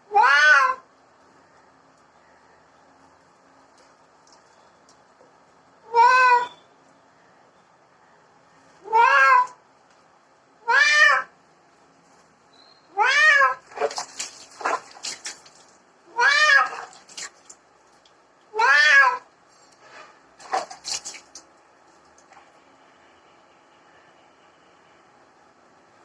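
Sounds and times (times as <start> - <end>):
cat meowing: 0.1 - 0.8, 5.9 - 6.6, 8.8 - 9.6, 10.6 - 11.3, 12.9 - 13.6, 16.1 - 16.9, 18.5 - 19.3.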